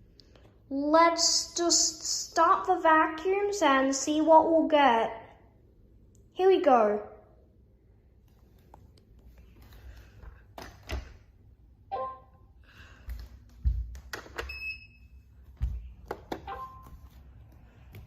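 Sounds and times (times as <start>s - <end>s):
high beep: 11.9s - 12.4s.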